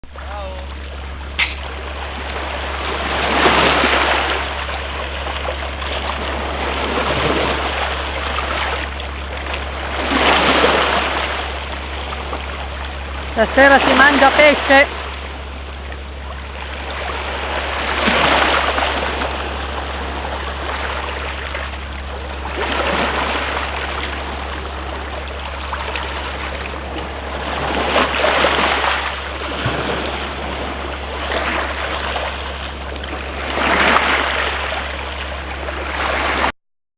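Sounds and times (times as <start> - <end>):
low rumble: 0.0 - 36.5
sea waves washing against rocks: 0.1 - 36.5.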